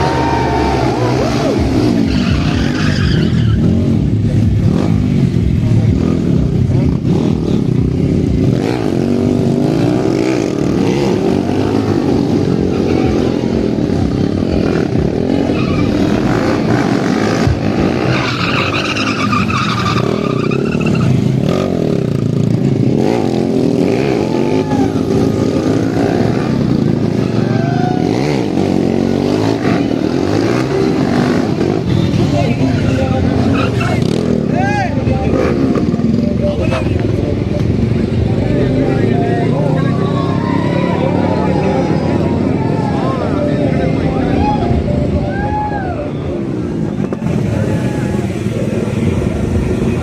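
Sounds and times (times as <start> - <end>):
tyres squealing: 0.0 - 3.8, 15.3 - 16.7, 17.8 - 21.5, 30.3 - 34.4
motorcycle engines revving: 0.0 - 50.0.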